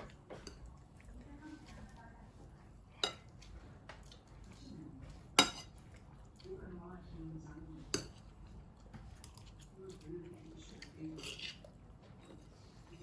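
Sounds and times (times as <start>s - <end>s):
cutlery clinking on a dish: 0.0s - 1.1s, 3.0s - 3.6s, 5.0s - 6.0s, 7.9s - 8.3s, 10.8s - 12.5s.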